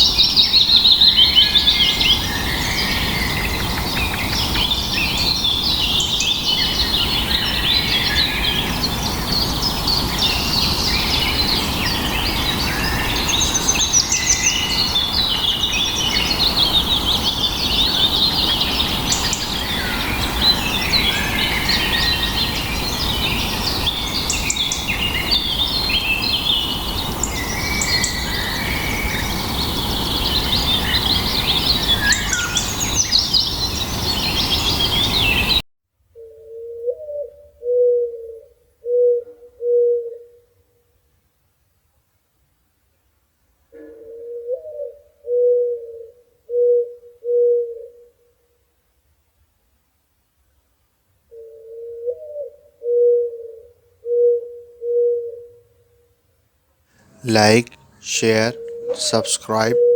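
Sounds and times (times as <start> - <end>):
birds chirping and trilling: 0.2 - 35.6
low background noise: 53.5 - 59.9.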